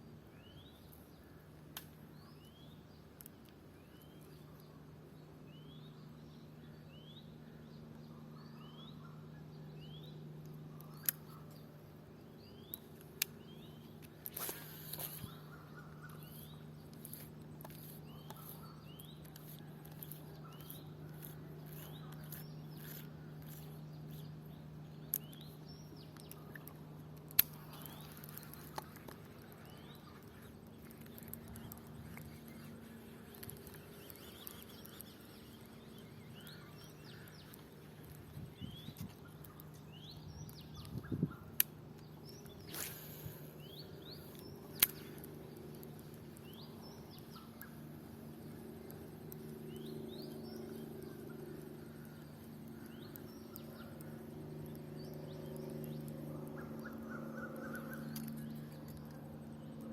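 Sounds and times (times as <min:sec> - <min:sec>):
steady low hum: 0:00.0 - 0:59.9
small birds chirping: 0:00.2 - 0:59.9
sharp clicks: 0:25.1 - 0:32.6, 0:41.6 - 0:47.8, 0:57.5 - 0:59.2.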